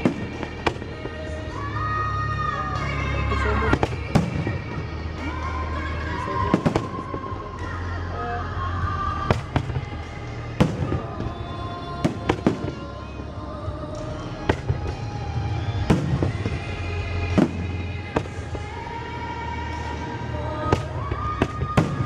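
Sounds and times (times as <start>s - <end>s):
fireworks bangs: 0.0s - 1.7s, 3.6s - 5.4s, 6.4s - 7.4s, 9.2s - 13.1s, 14.4s - 22.0s
music playing: 0.0s - 22.0s.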